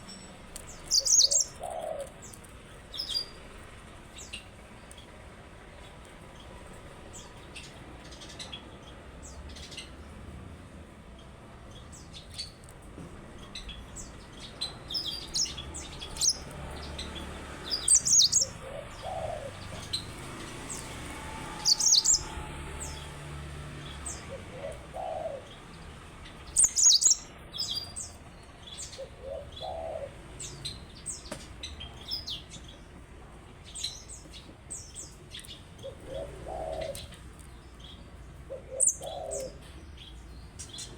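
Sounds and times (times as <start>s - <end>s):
canary chirps and trills: 0.0s - 10.2s, 11.2s - 12.8s, 13.4s - 40.9s.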